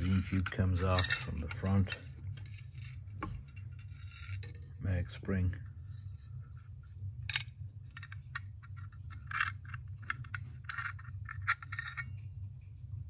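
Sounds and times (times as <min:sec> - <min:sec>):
metal rifle parts clinking: 0:00.0 - 0:04.6
low hum: 0:00.0 - 0:13.0.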